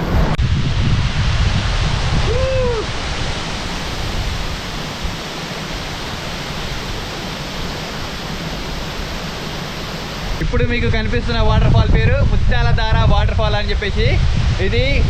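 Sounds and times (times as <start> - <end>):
waterfall rushing: 0.0 - 10.5.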